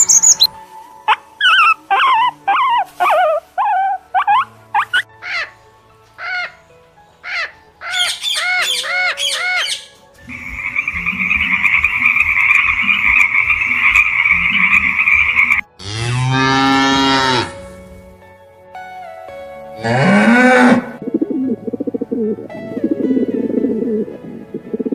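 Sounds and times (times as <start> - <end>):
parakeets squawking: 0.0 - 0.5, 7.2 - 15.6
frog trilling: 7.4 - 15.6
cow mooing: 15.8 - 17.6, 19.8 - 21.0.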